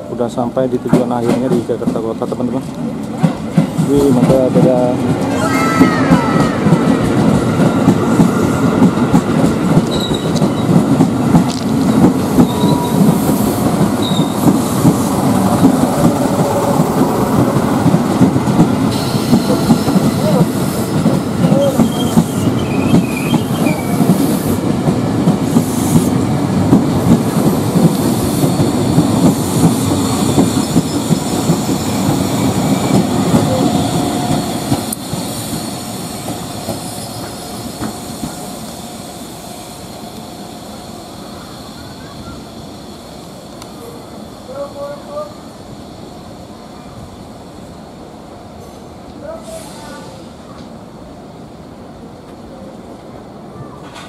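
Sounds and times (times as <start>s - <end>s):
train wheels clattering: 0.7s - 40.8s
high wheel squeals: 9.9s - 10.7s, 12.4s - 13.1s, 14.0s - 14.4s.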